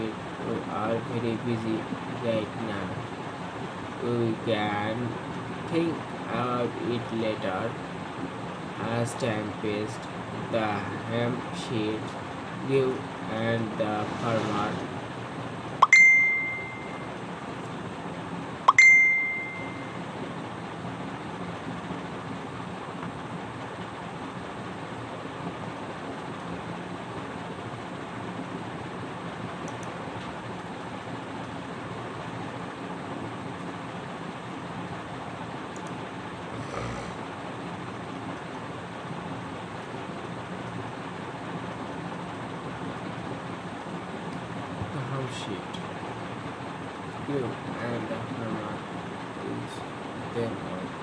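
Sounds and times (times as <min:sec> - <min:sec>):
faint steady hum: 0:00.0 - 0:51.0
bell-like dings: 0:15.8 - 0:17.1, 0:18.7 - 0:20.0.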